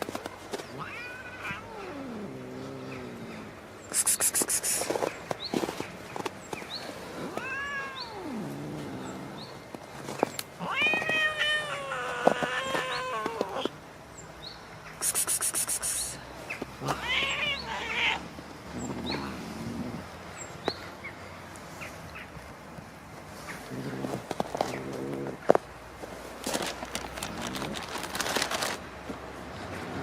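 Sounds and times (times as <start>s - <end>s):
cats yowling: 0.6s - 3.2s, 7.2s - 9.3s, 10.6s - 13.8s, 16.8s - 19.5s.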